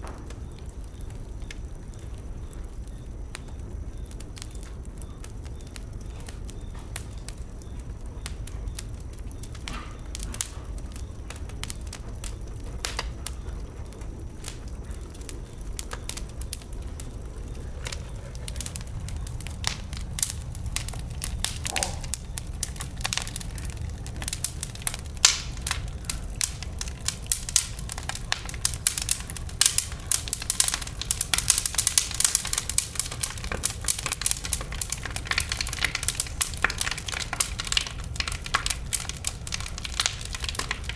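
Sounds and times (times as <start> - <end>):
bonfire crackling and popping: 0.0 - 40.9
low steady rumble: 0.3 - 40.9.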